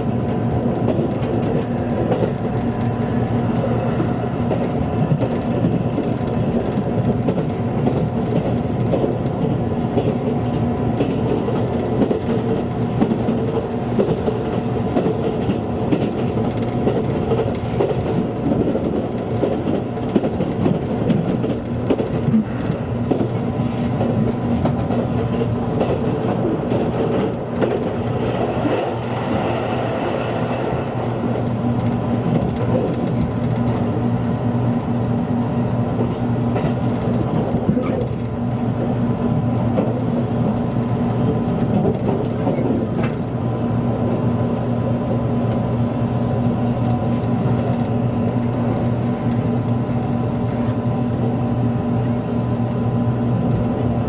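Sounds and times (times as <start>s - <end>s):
train wheels rumbling on rail: 0.0s - 54.0s
constant low hum: 30.6s - 54.0s.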